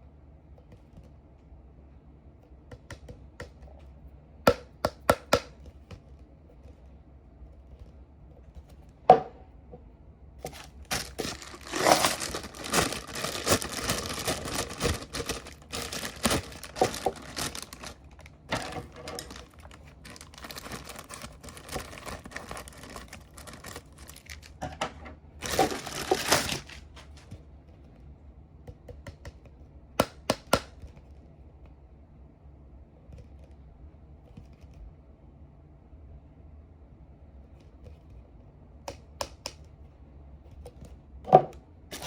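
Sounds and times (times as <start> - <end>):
packaging crinkling: 10.4 - 24.6, 25.4 - 27.3.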